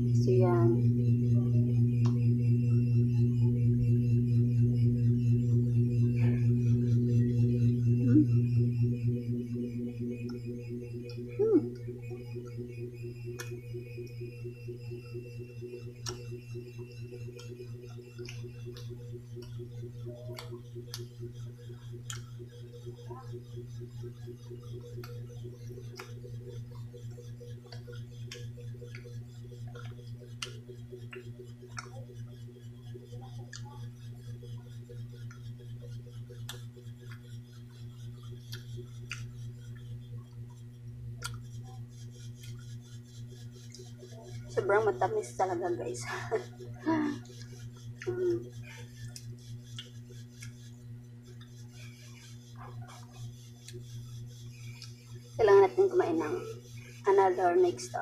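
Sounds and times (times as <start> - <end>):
pulsing low hum: 0.0 - 58.0
mouth clicks while chewing: 38.4 - 39.9, 41.2 - 41.6.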